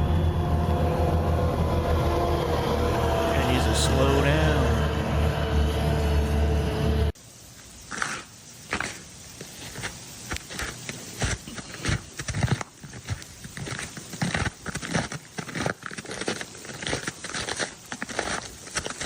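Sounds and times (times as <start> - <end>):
ice crackling: 7.6 - 19.0.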